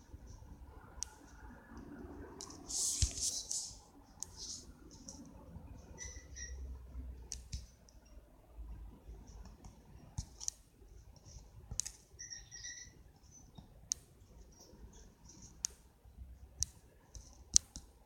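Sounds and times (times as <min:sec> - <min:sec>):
high squeaking: 0:12.2 - 0:13.0.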